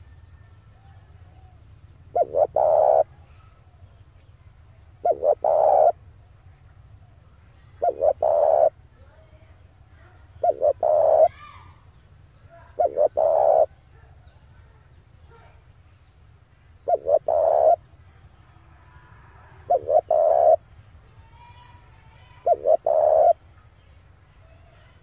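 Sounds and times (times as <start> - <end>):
steady low hum: 0.0 - 25.0
dove cooing: 0.8 - 3.5, 4.9 - 6.1, 7.6 - 8.9, 10.1 - 11.5, 12.5 - 14.1, 16.8 - 18.0, 19.0 - 20.6, 21.3 - 23.5.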